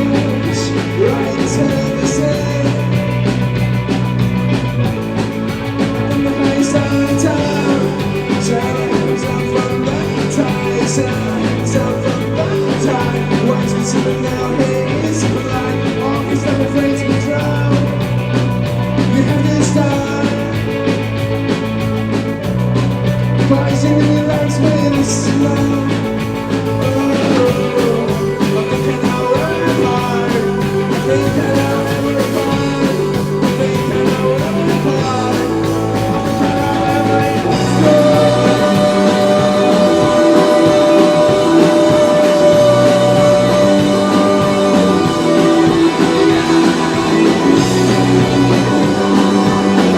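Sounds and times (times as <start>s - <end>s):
person singing: 0.0s - 3.6s, 5.9s - 20.9s, 23.4s - 49.9s
rock band playing live: 0.0s - 49.9s.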